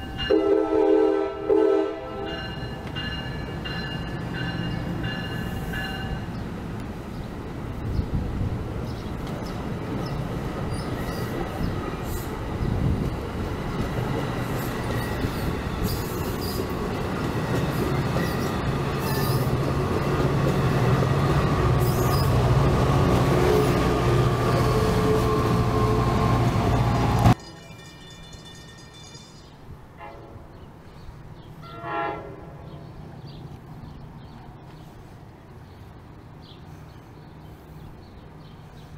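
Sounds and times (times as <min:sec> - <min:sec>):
outdoor background: 0:00.0 - 0:38.9
train running: 0:00.0 - 0:38.9
train horn: 0:00.2 - 0:02.6, 0:23.3 - 0:26.9, 0:30.0 - 0:30.5, 0:31.6 - 0:32.8.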